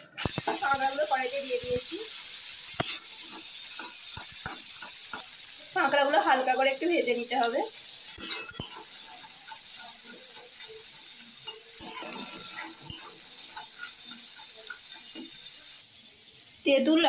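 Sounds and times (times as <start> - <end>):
food sizzling in oil: 0.0 - 17.0
spatula scraping a pan: 2.4 - 15.8.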